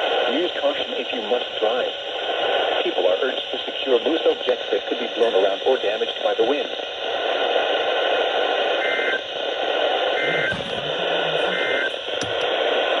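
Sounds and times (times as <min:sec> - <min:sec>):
radio static hiss: 0:00.0 - 0:13.0
two-tone digital warble: 0:10.2 - 0:11.9.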